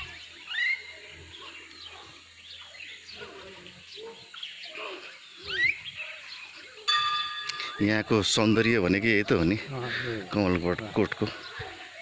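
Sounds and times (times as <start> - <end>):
loud rising bird calls: 0.0 - 8.0
small birds chirping: 0.0 - 12.0.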